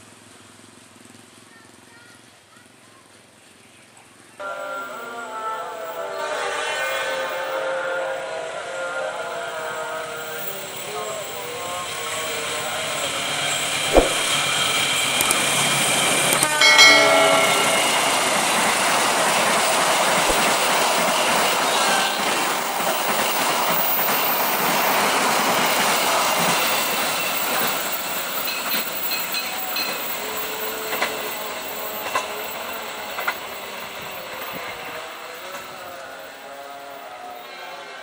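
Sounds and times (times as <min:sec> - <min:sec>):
train wheels clattering on rails: 0:10.7 - 0:35.9.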